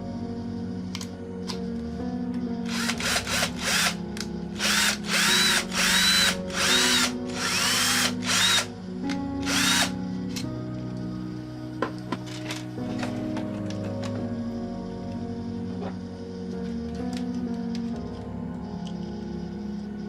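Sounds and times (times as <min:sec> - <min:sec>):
background music: 0:00.0 - 0:20.0
electric drill spinning: 0:02.7 - 0:04.0, 0:04.6 - 0:08.7, 0:09.4 - 0:09.9.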